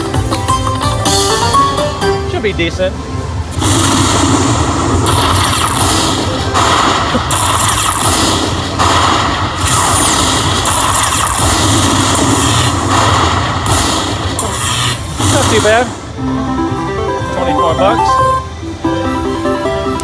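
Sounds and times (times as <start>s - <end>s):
slot machine sound effects: 3.5s - 13.0s, 14.4s - 20.0s.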